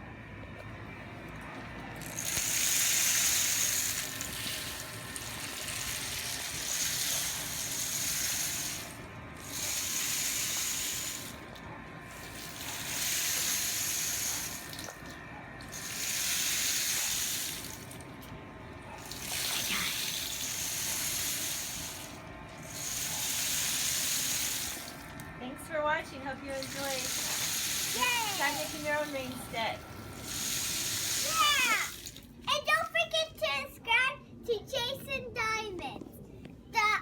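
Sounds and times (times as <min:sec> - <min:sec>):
rain stick hiss: 0:02.0 - 0:11.4, 0:26.5 - 0:32.2.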